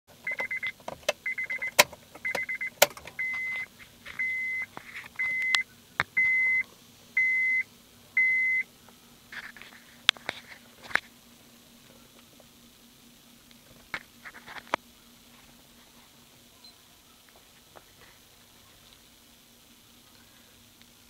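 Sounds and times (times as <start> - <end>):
electronic warning chime beeps: 0.2 - 5.6, 6.2 - 6.6, 7.2 - 7.6, 8.2 - 8.6
sharp clicks: 0.3 - 3.5.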